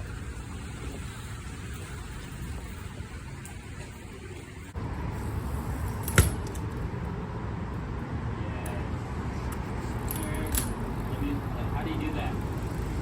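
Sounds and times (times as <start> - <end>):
bike rolling over concrete: 0.0 - 6.9, 10.0 - 13.0.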